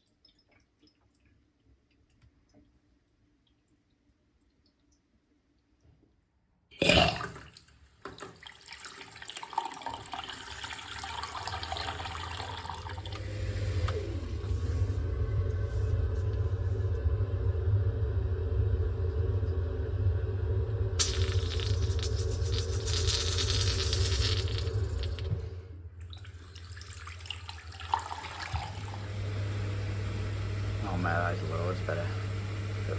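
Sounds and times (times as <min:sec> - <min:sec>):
water rushing through pipes: 0:06.8 - 0:32.9
circulating pump humming: 0:09.8 - 0:32.9.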